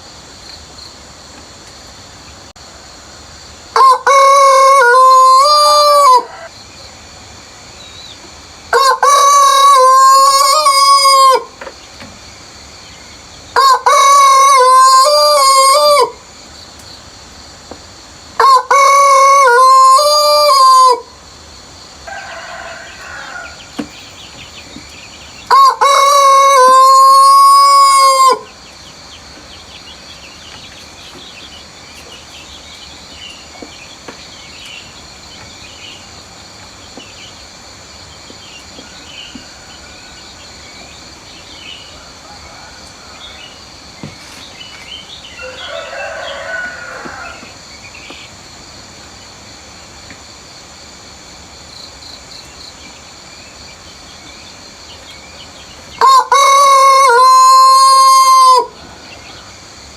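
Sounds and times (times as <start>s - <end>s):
high insect trill: 0.0s - 59.9s
distant rooster calls: 3.7s - 6.9s, 8.7s - 11.8s, 13.5s - 16.3s, 18.4s - 21.2s, 21.9s - 35.0s, 36.9s - 48.4s, 55.6s - 59.7s
rooster crowing: 3.8s - 6.6s, 8.7s - 11.6s, 13.6s - 16.2s, 18.4s - 21.1s, 22.0s - 28.5s, 38.7s - 40.6s, 41.5s - 44.1s, 45.2s - 47.7s, 55.9s - 59.6s.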